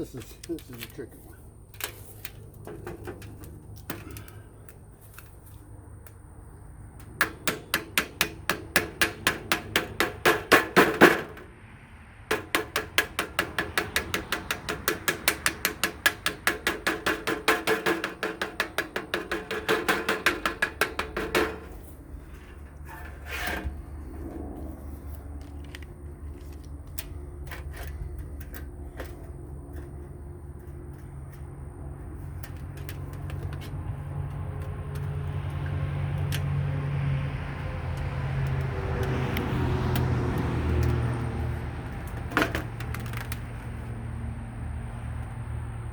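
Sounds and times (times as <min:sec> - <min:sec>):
hammer blows on sheet metal: 0:07.2 - 0:11.4, 0:12.3 - 0:21.9.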